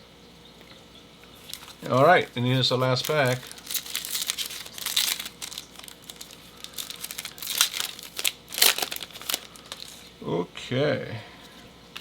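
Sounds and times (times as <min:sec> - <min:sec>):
wrapper crinkling and tearing: 0:01.5 - 0:10.1.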